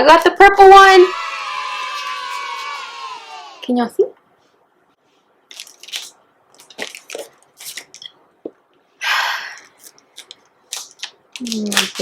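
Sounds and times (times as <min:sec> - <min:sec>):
plastic wrapping crinkling: 0:05.5 - 0:08.2, 0:09.6 - 0:12.0.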